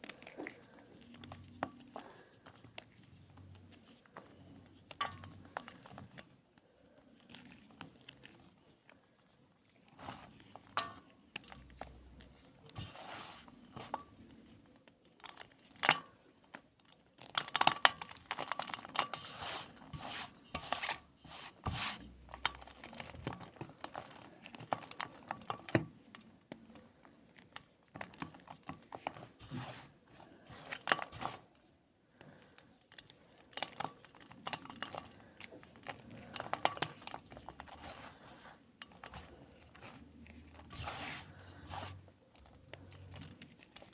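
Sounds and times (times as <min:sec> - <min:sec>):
chalk crunching and crumbling: 0:00.0 - 0:43.9.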